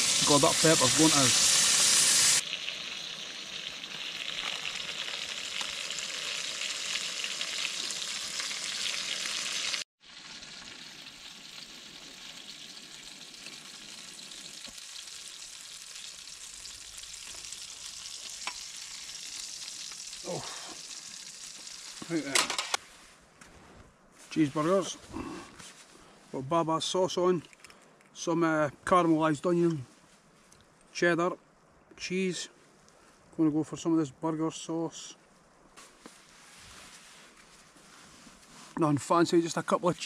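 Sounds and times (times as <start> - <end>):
burgers sizzling in a frying pan: 0.0 - 22.8.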